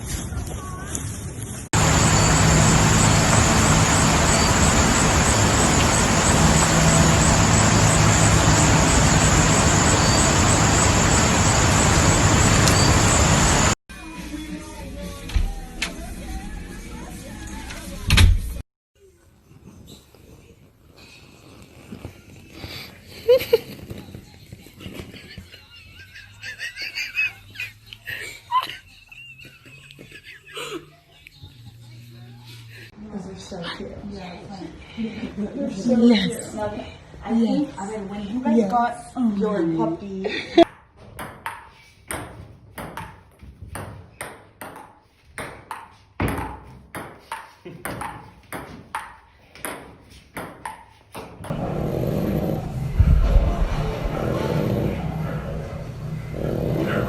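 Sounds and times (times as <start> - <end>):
loud rushing noise: 1.8 - 13.8
low hum: 1.8 - 13.8, 51.5 - 57.0
person giggling: 24.8 - 31.5.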